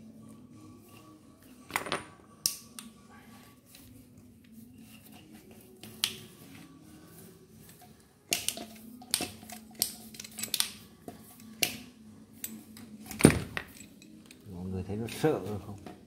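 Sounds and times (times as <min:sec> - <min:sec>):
tools and parts clicking and knocking: 0:07.7 - 0:14.4.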